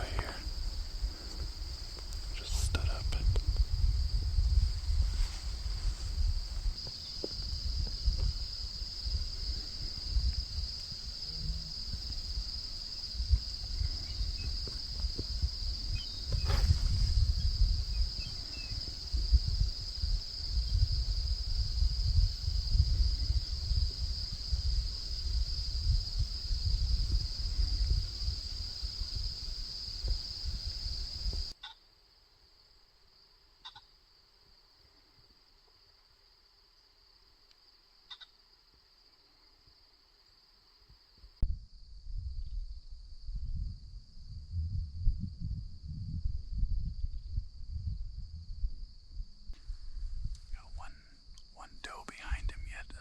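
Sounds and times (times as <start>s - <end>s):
wind rumble on microphone: 0.0s - 31.6s, 41.2s - 53.0s
crickets chirring: 0.0s - 53.0s.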